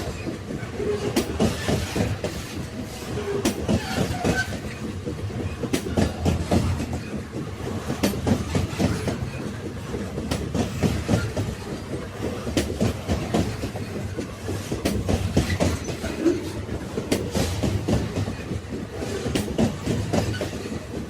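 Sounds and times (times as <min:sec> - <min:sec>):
train wheels rumbling on rails: 0:00.0 - 0:21.0
wheels clacking over rail joints: 0:00.0 - 0:21.0.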